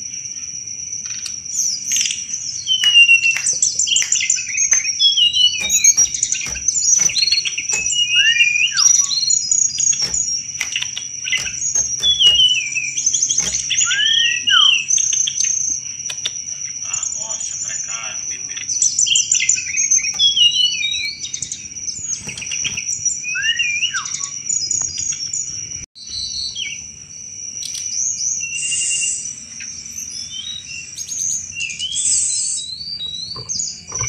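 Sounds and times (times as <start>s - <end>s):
bird singing whistles and chirps: 1.0s - 16.4s, 18.6s - 24.5s
rattling trills and clicking chatter: 2.8s - 14.2s, 19.2s - 21.4s.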